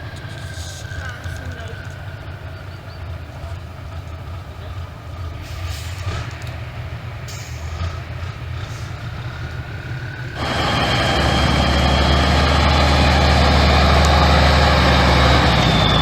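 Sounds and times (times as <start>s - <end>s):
heavy truck engine droning: 0.0s - 16.0s.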